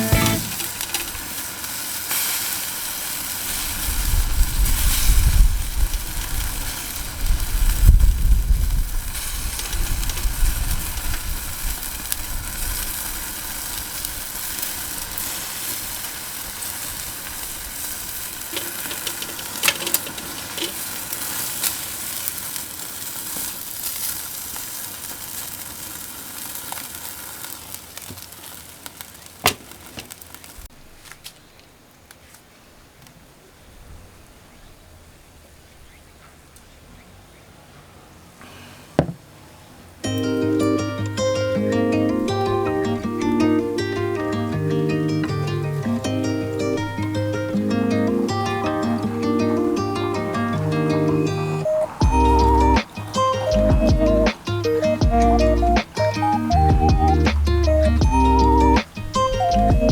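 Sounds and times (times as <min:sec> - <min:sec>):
meat sizzling over charcoal: 0:00.0 - 0:31.3, 0:40.0 - 0:59.9
low rumbles: 0:52.0 - 0:52.8, 0:53.6 - 0:54.3, 0:55.0 - 0:55.8.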